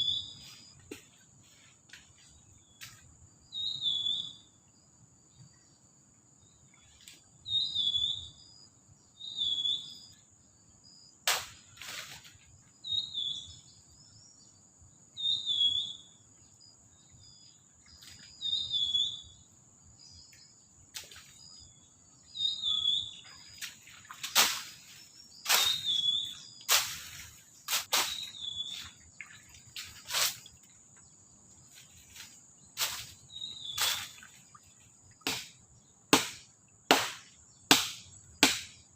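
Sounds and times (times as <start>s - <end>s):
insect drone: 0.0s - 38.9s
bird chirping: 3.5s - 4.6s, 7.5s - 10.2s, 12.8s - 32.2s, 32.8s - 34.5s
sharp knocks: 35.2s - 38.8s.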